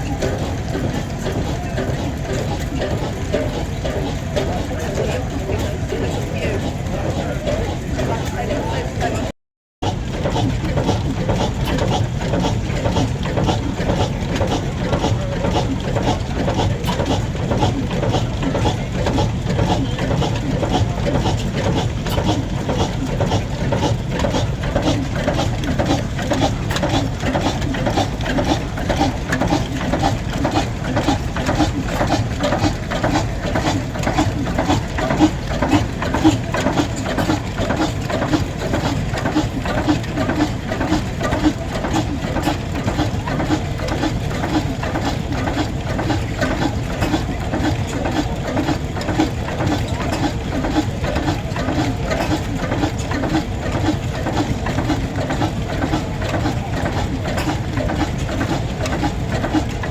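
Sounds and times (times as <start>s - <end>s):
engine running with rhythmic beat: 0.0s - 59.9s.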